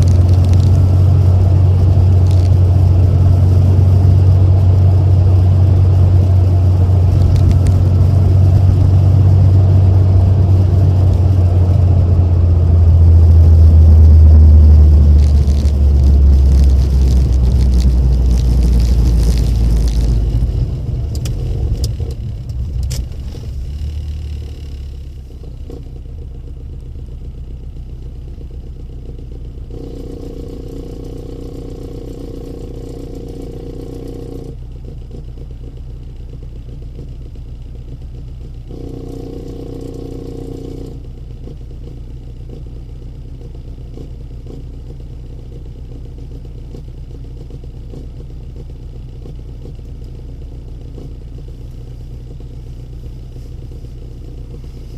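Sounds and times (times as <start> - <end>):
car engine idling: 0.0 - 54.9
mid-pitched humming tone: 38.6 - 41.1.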